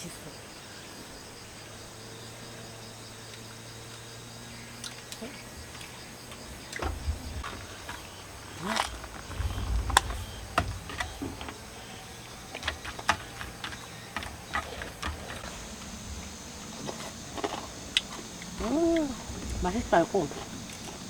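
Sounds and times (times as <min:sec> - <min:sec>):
dull low bumps: 0:05.4 - 0:21.0.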